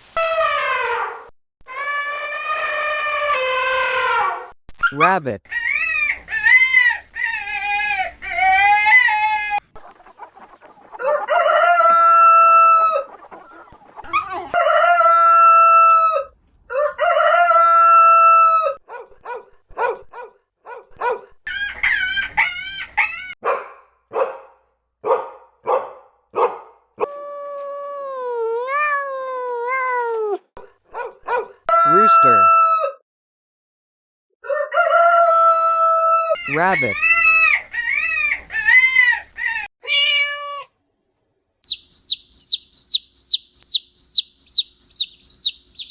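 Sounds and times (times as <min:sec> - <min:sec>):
chicken clucking: 0:09.6 - 0:17.5, 0:41.6 - 0:45.9
rooster crowing: 0:11.0 - 0:13.1, 0:14.1 - 0:18.8, 0:31.7 - 0:33.0, 0:34.4 - 0:36.4
gliding animal calls: 0:41.7 - 0:45.9.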